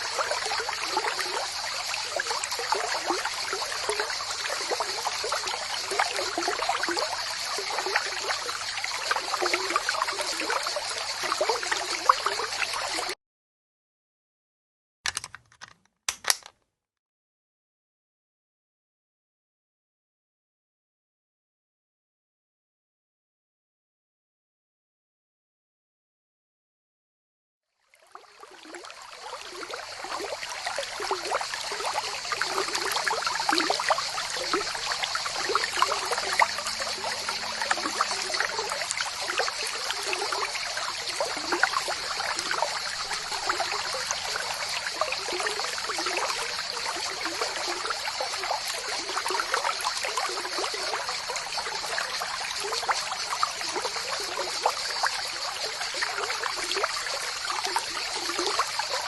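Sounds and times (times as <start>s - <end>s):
water pouring and splashing: 0.0s - 13.2s, 28.2s - 59.0s.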